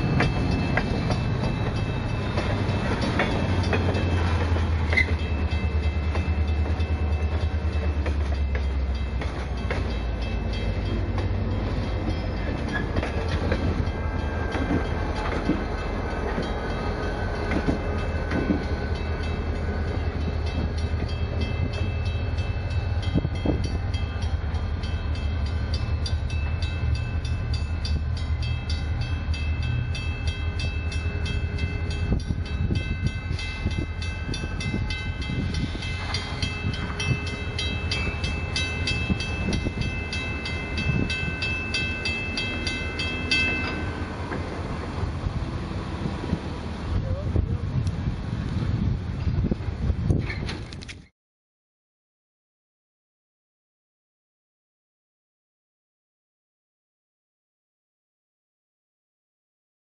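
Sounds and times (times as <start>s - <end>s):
crossing warning bell ringing: 0.0s - 46.8s
freight train rumbling: 0.0s - 51.1s.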